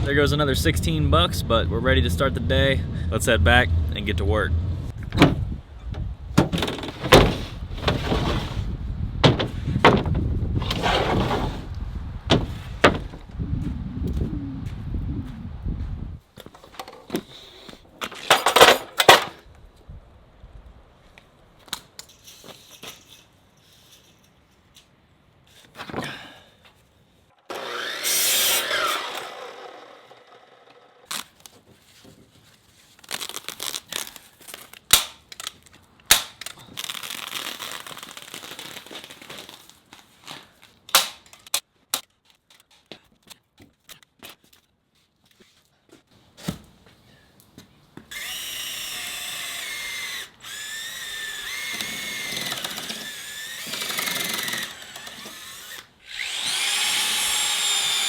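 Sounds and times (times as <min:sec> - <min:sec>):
knocks and clicks of wood and tools: 0:05.0 - 0:08.5, 0:09.2 - 0:11.2, 0:12.3 - 0:13.2
power drill whining: 0:27.5 - 0:31.1, 0:48.1 - 0:58.0.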